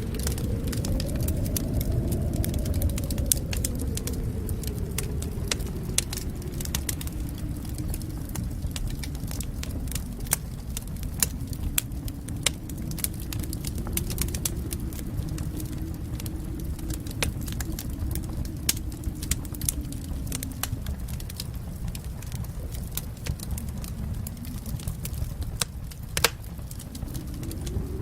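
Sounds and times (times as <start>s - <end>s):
fire flames roaring: 0.0s - 28.0s
wood crackling and popping: 0.0s - 28.0s.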